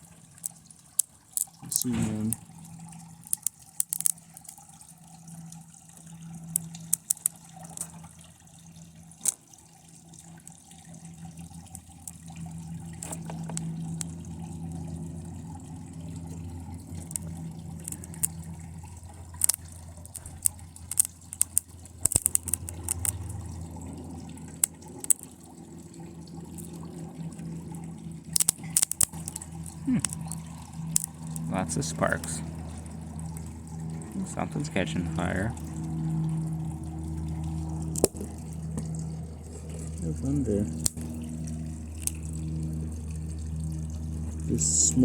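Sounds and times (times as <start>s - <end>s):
low steady hum: 0.0s - 45.0s
electrical arcing crackles and pops: 16.2s - 25.3s.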